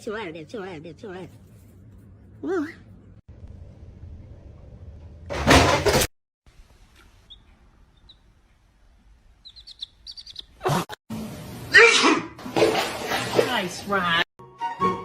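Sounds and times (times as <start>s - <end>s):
high bird-like chirps: 7.2s - 8.3s, 9.4s - 10.6s.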